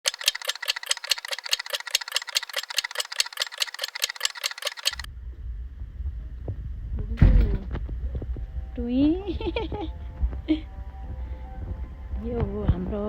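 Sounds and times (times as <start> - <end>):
fast rattle of clicks: 0.0 - 5.1
low rumble: 5.1 - 13.0.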